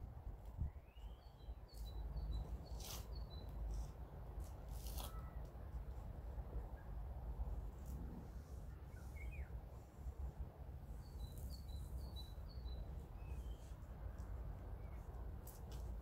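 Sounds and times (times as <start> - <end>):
small bird chirping: 0.6 - 4.0, 8.7 - 9.6, 10.9 - 13.9.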